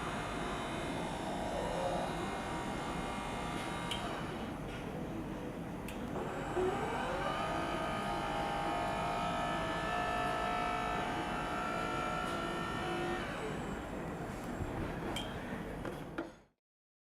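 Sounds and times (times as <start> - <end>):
electric motor whining: 6.2 - 13.8.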